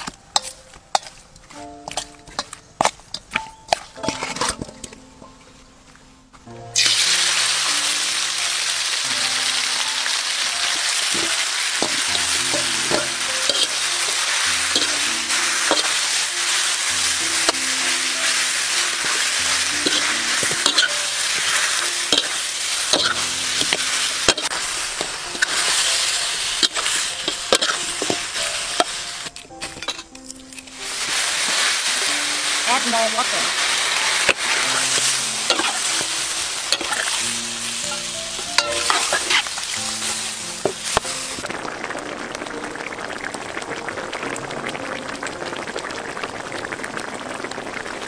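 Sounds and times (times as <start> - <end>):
metal spatula scraping pan: 1.9 - 4.9, 11.1 - 16.2, 19.0 - 29.0, 34.1 - 39.6
meat frying in hot oil: 6.8 - 29.3, 30.7 - 48.0.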